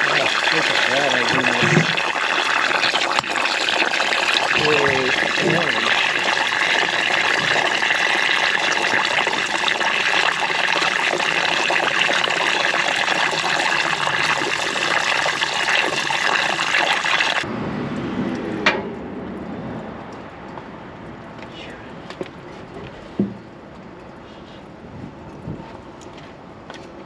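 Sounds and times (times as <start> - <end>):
gasoline draining into container: 0.0 - 17.5.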